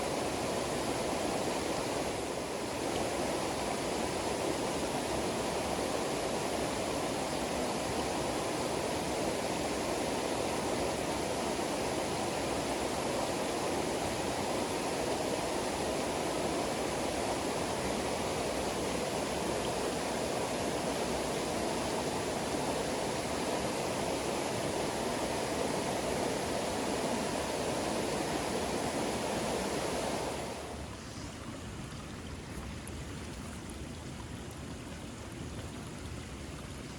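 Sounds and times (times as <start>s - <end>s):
rushing water: 0.0s - 36.9s.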